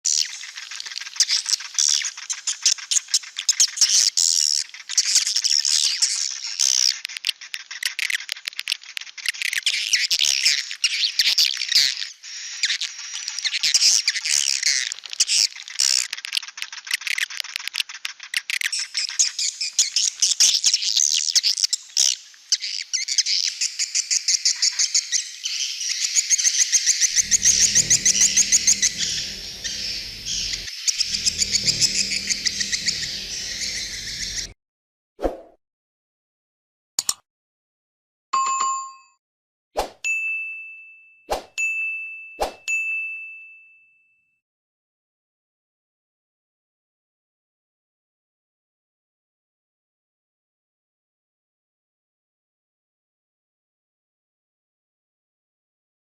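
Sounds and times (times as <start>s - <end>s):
swiftlets twittering chirps: 27.1s - 34.6s
low hum: 27.2s - 34.6s.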